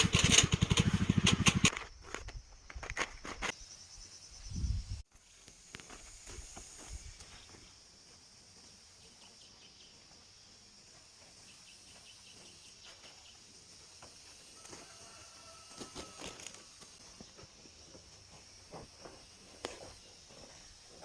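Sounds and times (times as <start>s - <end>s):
high insect drone: 1.6s - 21.0s.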